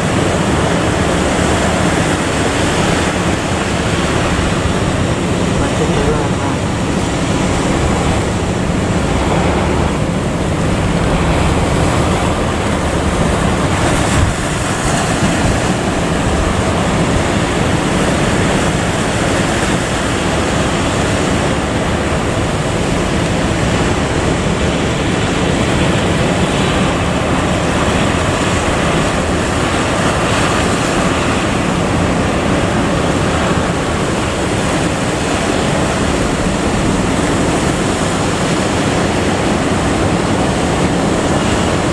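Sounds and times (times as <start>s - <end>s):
low drone: 0.0s - 34.6s
wind rushing: 0.0s - 41.0s
sea waves: 0.0s - 41.9s.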